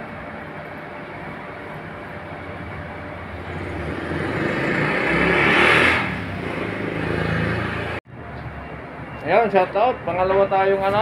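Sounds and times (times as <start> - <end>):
vehicle engine running: 1.0 - 8.0.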